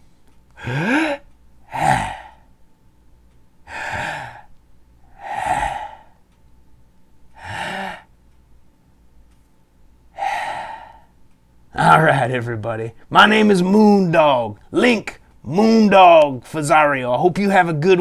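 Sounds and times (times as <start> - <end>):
person breathing deeply: 0.6 - 2.5, 3.6 - 4.5, 5.1 - 6.2, 7.4 - 8.1, 10.2 - 11.2.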